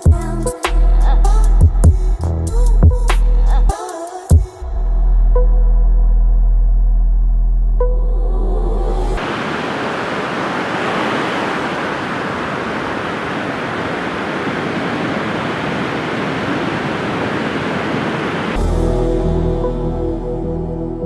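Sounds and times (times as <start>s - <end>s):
ocean waves breaking: 9.2s - 18.6s.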